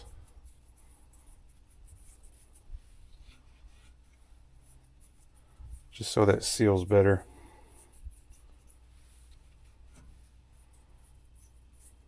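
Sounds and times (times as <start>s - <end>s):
fingers rubbing oil on rubber: 0.0s - 6.7s.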